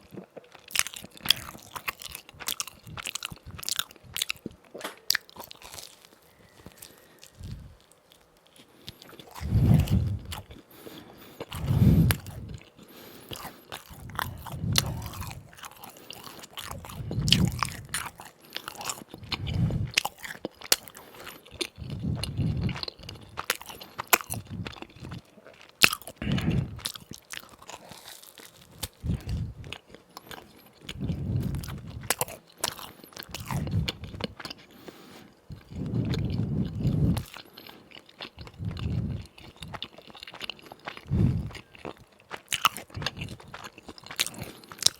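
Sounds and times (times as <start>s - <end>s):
crunching fried doughnuts: 0.0s - 44.9s
chewing thumps: 13.3s - 34.6s, 35.5s - 44.9s.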